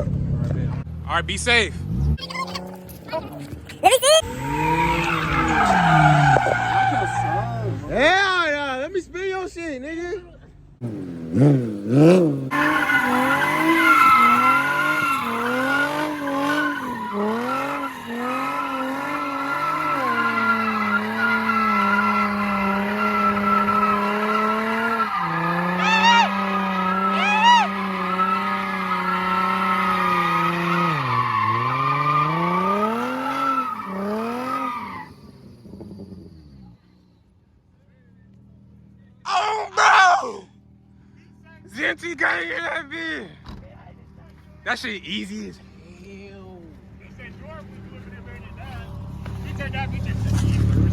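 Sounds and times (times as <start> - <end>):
car engine revving: 0.0 - 8.1, 10.7 - 39.2, 46.9 - 50.9
tyres squealing: 2.2 - 7.9, 12.5 - 36.2.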